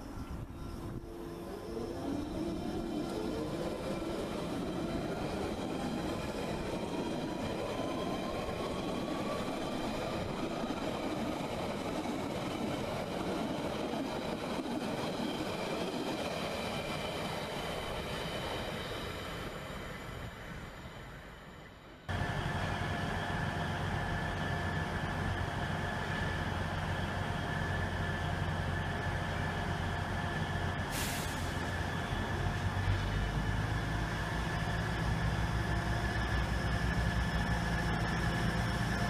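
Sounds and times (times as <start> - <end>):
diesel train engine drone: 0.0 - 39.0
brief hiss: 30.9 - 31.7.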